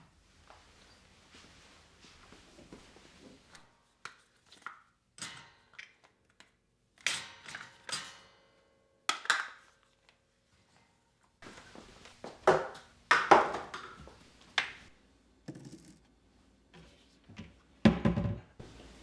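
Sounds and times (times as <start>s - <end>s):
objects knocking and rustling: 11.4s - 16.2s, 16.8s - 19.0s.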